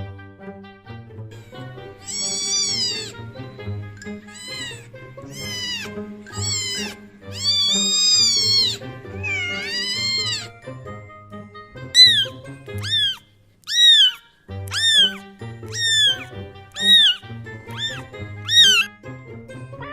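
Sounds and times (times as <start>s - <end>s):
background music: 0.0s - 19.9s
cat meowing: 2.0s - 10.6s, 12.0s - 18.9s.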